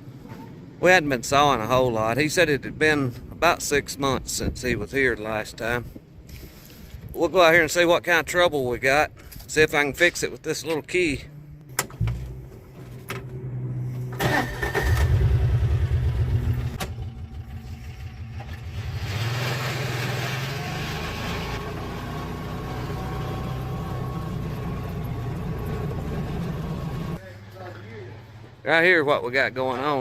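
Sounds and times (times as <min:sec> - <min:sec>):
engine running: 0:11.2 - 0:27.2.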